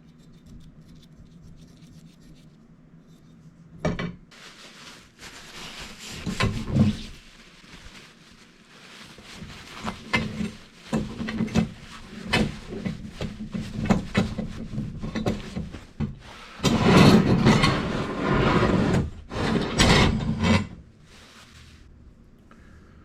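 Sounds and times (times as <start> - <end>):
pipe being scrubbed: 0.0 - 3.7, 4.4 - 8.2, 8.8 - 19.5.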